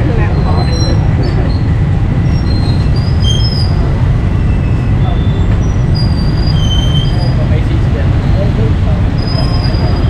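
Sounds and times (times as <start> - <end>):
low rumble of street market: 0.0 - 10.0
high-pitched squeaks: 4.5 - 7.4.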